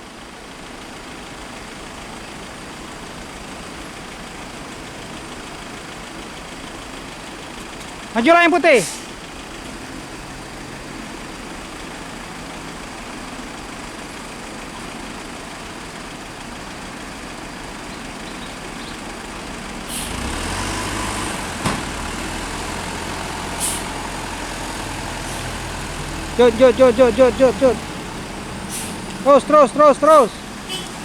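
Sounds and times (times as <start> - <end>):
diesel engine idling: 0.0 - 31.0
air brake hisses: 8.8 - 9.2, 19.9 - 20.3, 23.6 - 24.0, 25.2 - 25.6, 28.6 - 29.2.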